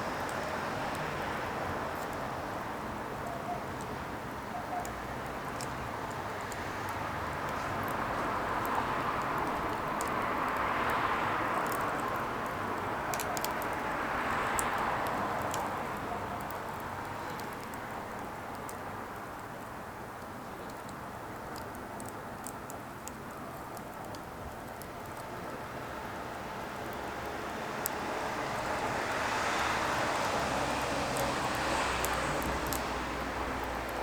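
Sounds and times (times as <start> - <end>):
firewood crackling and popping: 0.0 - 34.0.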